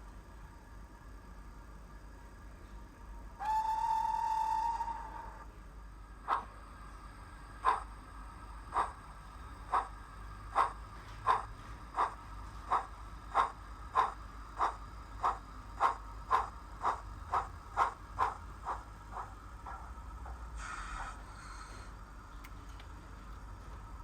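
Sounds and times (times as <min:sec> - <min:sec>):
steam locomotive chuffs from small speaker: 0:03.4 - 0:22.2.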